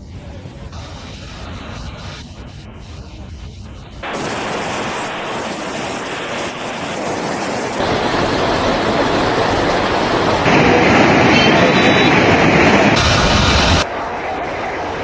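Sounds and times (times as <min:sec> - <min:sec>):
rushing water: 0:04.0 - 0:13.9.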